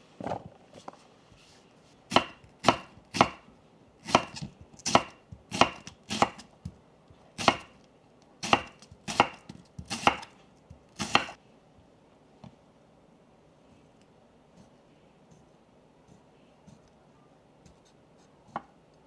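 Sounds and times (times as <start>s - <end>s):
knife chopping on cutting board: 2.1s - 3.4s, 4.0s - 6.8s, 7.4s - 7.8s, 8.4s - 11.4s.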